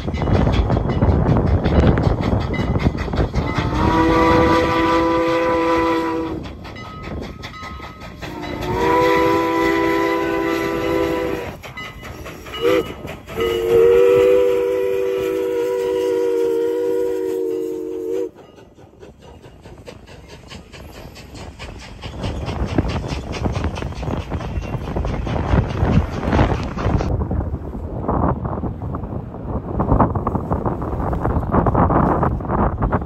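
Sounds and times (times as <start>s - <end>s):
train running with fast beat: 0.0s - 33.0s
steam locomotive chime whistle: 3.4s - 18.8s.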